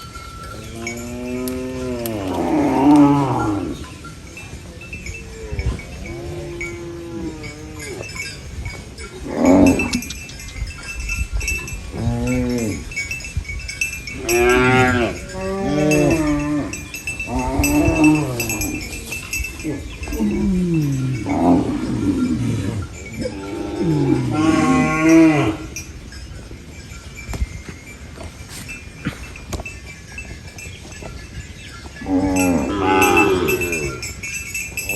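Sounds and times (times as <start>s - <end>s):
cows mooing: 0.0s - 4.0s, 5.3s - 10.4s, 11.5s - 13.0s, 14.1s - 25.9s, 31.9s - 34.9s.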